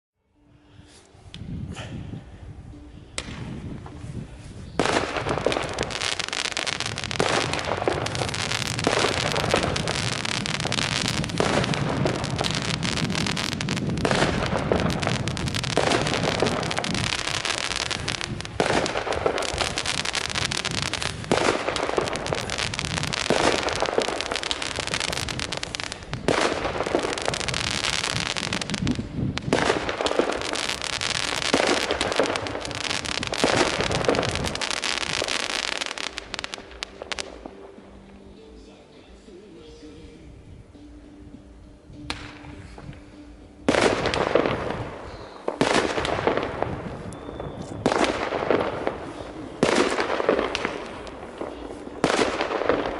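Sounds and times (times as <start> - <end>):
fireworks crackling: 3.2 - 38.7, 42.0 - 52.9
loud fireworks shots: 4.8 - 37.8, 43.7 - 52.9.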